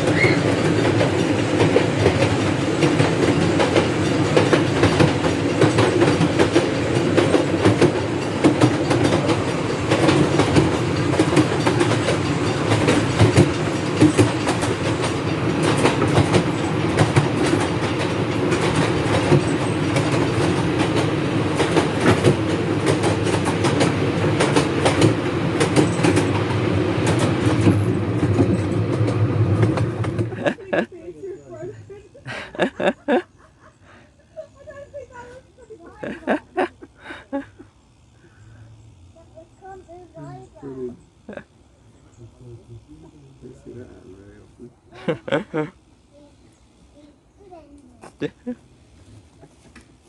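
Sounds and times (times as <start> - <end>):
wheels clicking over rail joints: 0.0 - 33.3
miniature train running: 0.0 - 50.0.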